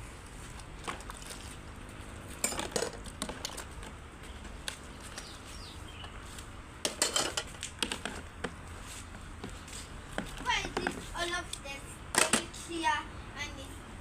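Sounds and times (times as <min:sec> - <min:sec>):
dishes and utensils clinking: 0:06.8 - 0:08.0.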